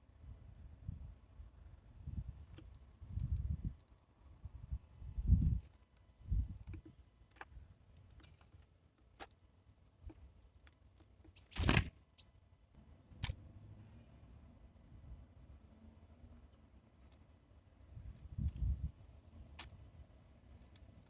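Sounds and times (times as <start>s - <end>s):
birds pecking taps and clicks: 10.6s - 11.9s.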